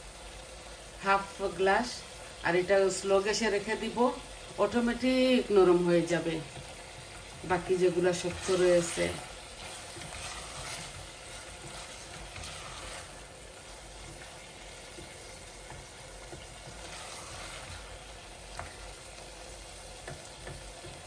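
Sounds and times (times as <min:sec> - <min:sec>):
meat sizzling in a pot: 0:00.0 - 0:21.0.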